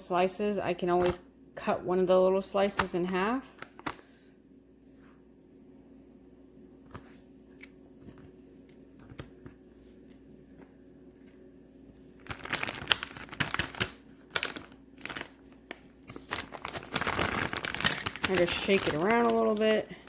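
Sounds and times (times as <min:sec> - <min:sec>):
plastic packaging crinkling: 0:03.5 - 0:04.1, 0:12.1 - 0:20.0.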